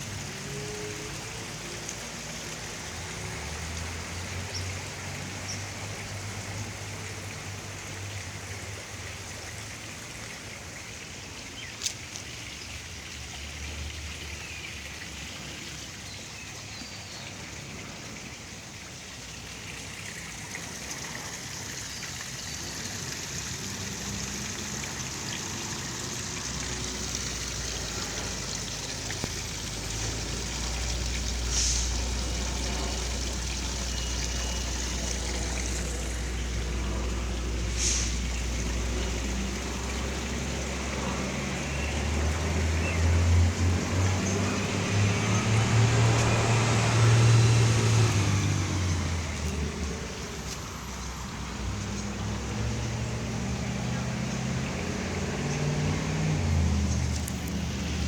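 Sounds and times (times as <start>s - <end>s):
water trickling: 0.0s - 58.0s
heavy rain falling: 23.6s - 51.7s.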